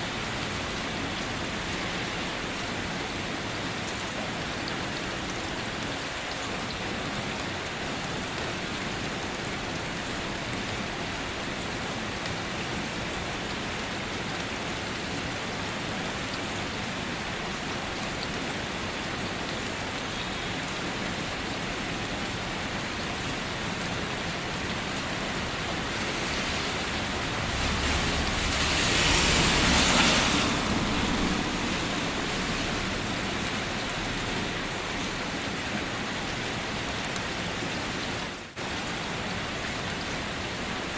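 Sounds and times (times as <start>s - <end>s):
steady rain falling: 0.0s - 40.9s
rushing swell with deep rumble: 25.4s - 34.3s.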